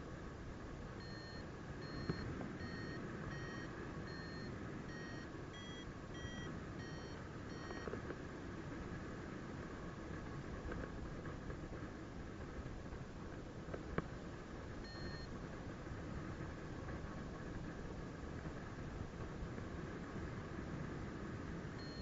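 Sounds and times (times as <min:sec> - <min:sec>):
variometer beeping: 0:01.0 - 0:08.0, 0:14.8 - 0:15.3, 0:21.8 - 0:22.0.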